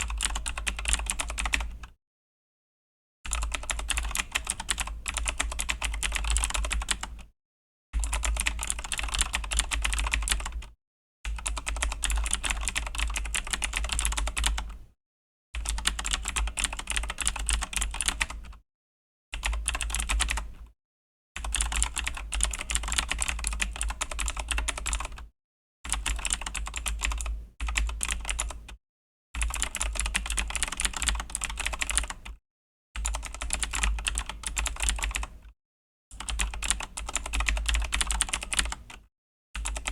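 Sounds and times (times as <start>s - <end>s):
mechanical keyboard typing: 0.0s - 1.9s, 3.3s - 7.2s, 8.0s - 10.6s, 11.3s - 14.7s, 15.6s - 18.6s, 19.4s - 20.5s, 21.4s - 25.2s, 25.9s - 28.7s, 29.4s - 32.3s, 33.0s - 35.3s, 36.2s - 39.0s, 39.6s - 39.9s.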